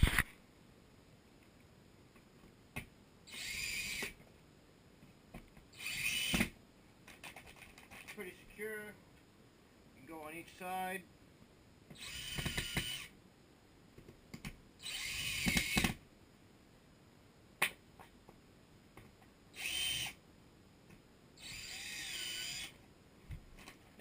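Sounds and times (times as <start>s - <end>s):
power drill driving screws: 3.3s - 4.2s, 5.8s - 6.5s, 12.0s - 13.1s, 14.8s - 16.0s, 19.6s - 20.2s, 21.4s - 22.7s.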